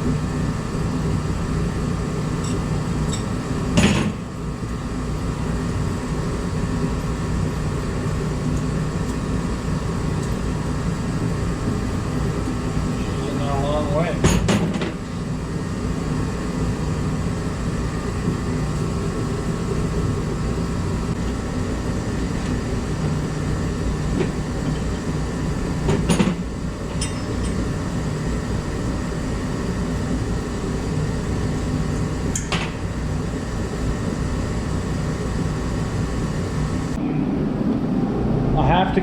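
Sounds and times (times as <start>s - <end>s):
low droning shop rumble: 0.0s - 39.0s.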